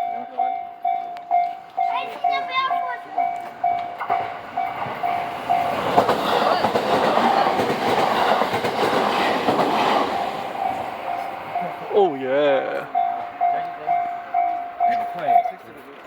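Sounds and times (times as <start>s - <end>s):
level-crossing bell ringing: 0.0s - 6.7s, 10.2s - 15.8s
train wheels clattering over rail joints: 3.3s - 11.7s.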